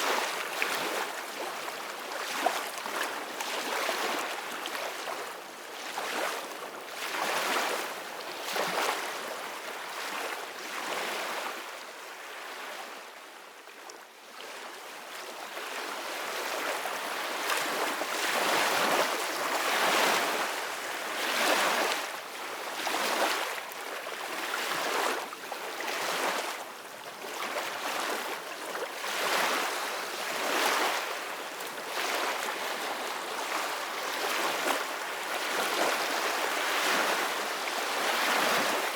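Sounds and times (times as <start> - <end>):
ocean waves breaking on shore: 15.6 - 26.6, 27.2 - 38.9.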